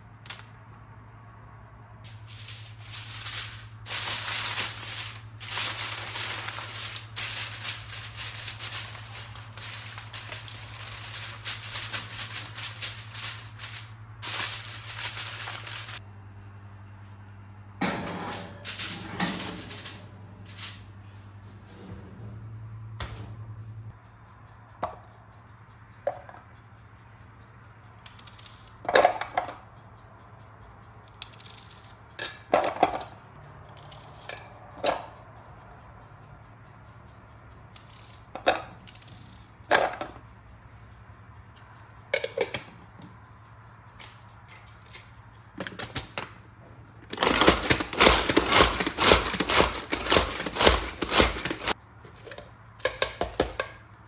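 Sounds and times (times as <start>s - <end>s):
rapid clattering: 2.1s - 16.0s
household objects knocking and clicking: 47.2s - 51.8s, 52.9s - 53.8s.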